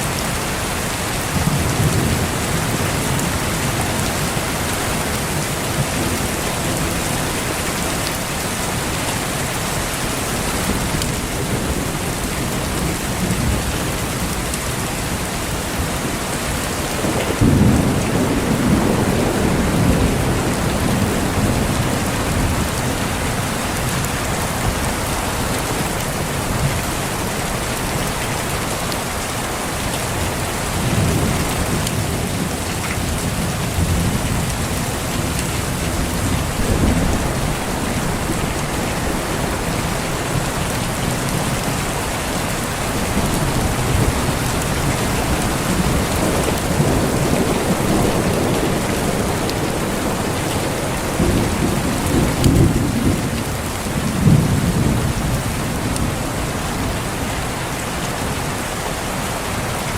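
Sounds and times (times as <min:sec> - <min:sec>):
heavy rain falling: 0:00.0 - 0:59.9
distant thunder rumbling: 0:16.0 - 0:26.8.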